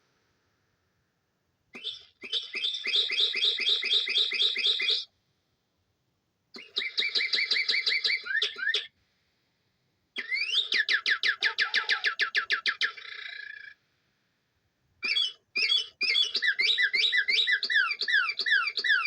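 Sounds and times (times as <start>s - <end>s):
toy bird chirps through speaker: 1.8s - 5.1s, 6.6s - 9.0s, 10.2s - 13.8s, 15.0s - 19.0s.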